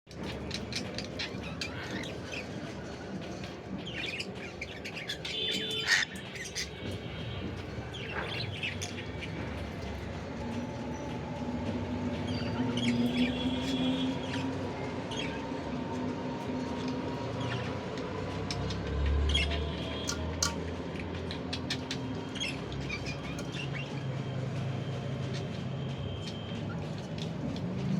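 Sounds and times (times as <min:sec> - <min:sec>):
cockatiel chirping and squawking: 0:04.9 - 0:06.7.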